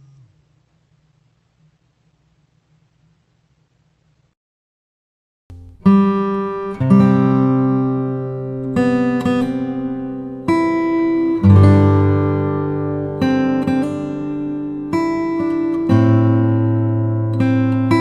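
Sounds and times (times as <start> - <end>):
guitar chords ringing out: 5.5 - 18.0.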